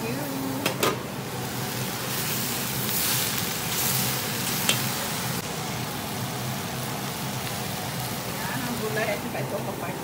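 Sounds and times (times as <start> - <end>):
vegetables sizzling in a pan: 0.0 - 10.0.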